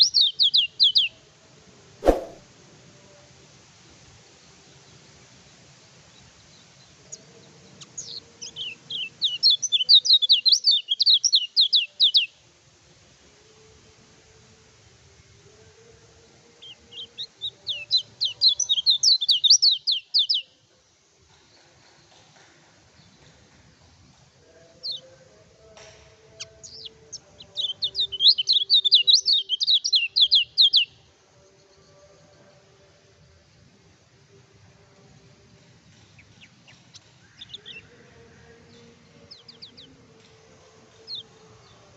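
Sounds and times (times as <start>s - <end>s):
bird chirping: 16.9s - 20.4s, 26.4s - 30.9s.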